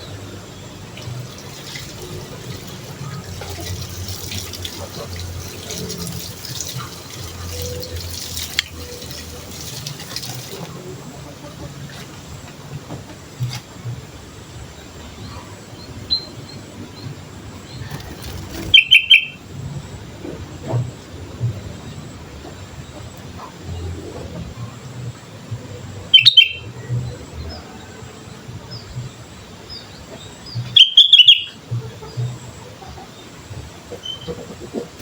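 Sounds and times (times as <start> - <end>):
bulbul calling: 17.8 - 19.4, 26.1 - 26.8, 30.5 - 31.9.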